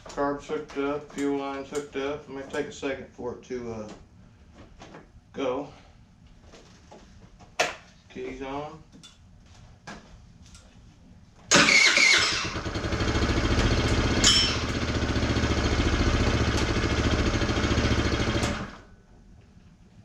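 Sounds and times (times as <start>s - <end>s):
scooter engine running: 11.5s - 18.9s.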